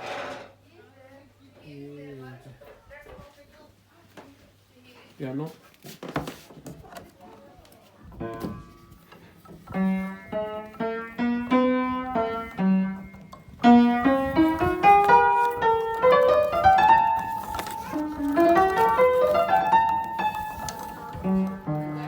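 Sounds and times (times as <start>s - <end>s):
piano playing: 9.6s - 22.0s.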